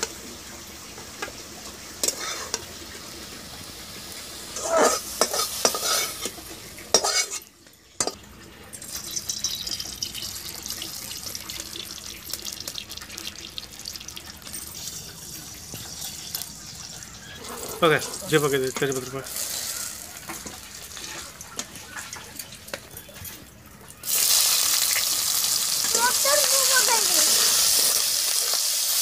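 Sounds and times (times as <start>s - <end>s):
oil sizzling and crackling: 0.0s - 29.0s
spatula scraping in a pan: 2.0s - 2.7s, 4.5s - 8.2s, 15.7s - 18.4s.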